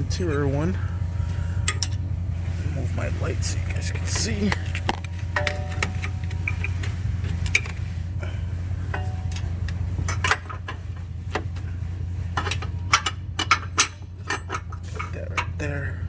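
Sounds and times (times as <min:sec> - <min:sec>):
steady low hum: 0:00.0 - 0:16.0
metal tools clicking and knocking: 0:04.1 - 0:06.8, 0:12.4 - 0:15.6.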